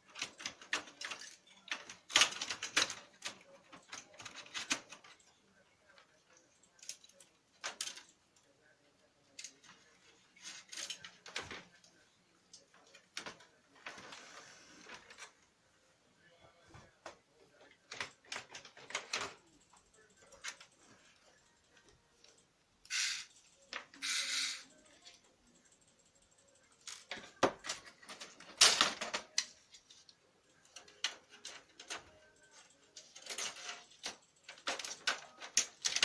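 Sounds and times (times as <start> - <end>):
plastic printer parts clicking: 0.0 - 5.3, 17.7 - 20.8, 26.5 - 36.0.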